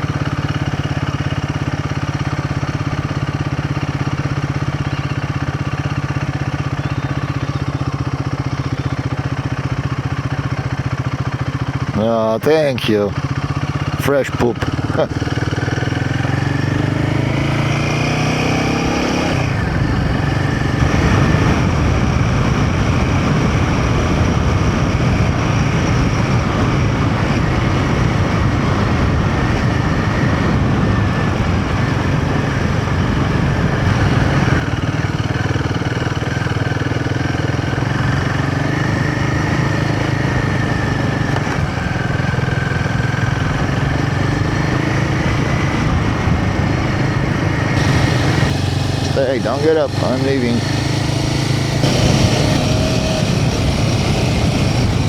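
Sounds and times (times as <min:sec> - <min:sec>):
motorcycle engine running: 0:00.0 - 0:55.0
riding noise rush: 0:43.4 - 0:55.0.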